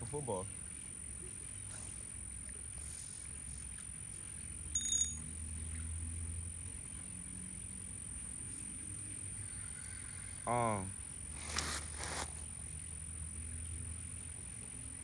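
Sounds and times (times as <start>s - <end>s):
bright bell ring: 4.7s - 5.3s
thin high-pitched tone: 4.8s - 5.3s.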